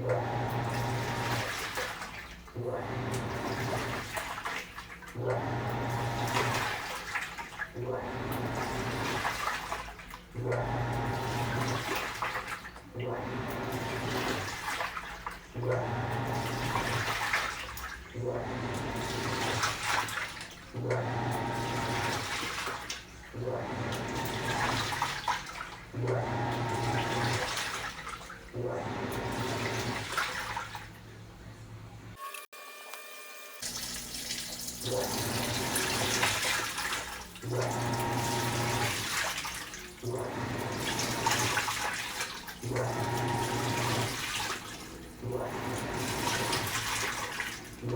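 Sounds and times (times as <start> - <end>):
washing machine motor hum: 0.0 - 32.2, 33.4 - 47.9
water sloshing in washing machine: 0.0 - 32.2, 33.6 - 47.9.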